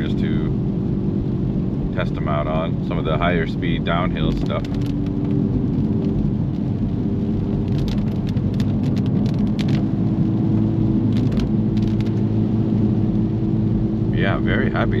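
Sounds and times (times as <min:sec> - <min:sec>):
car engine humming: 0:00.0 - 0:15.0
sharp ticks of raindrops: 0:04.2 - 0:13.0.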